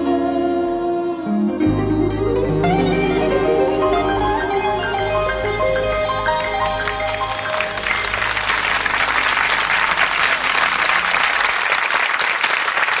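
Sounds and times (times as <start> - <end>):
pop song held notes: 0.0 - 11.3
audience applause: 5.8 - 13.0.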